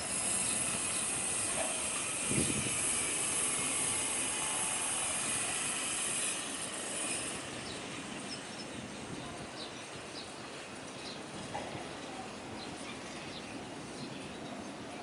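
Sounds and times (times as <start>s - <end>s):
jet airliner engine hiss: 0.0s - 8.4s.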